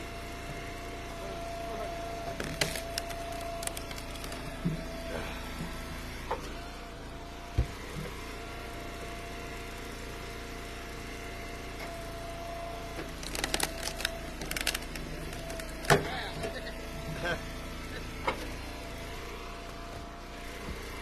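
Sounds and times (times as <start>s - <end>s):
hydraulic wood splitter whine: 0.0s - 21.0s.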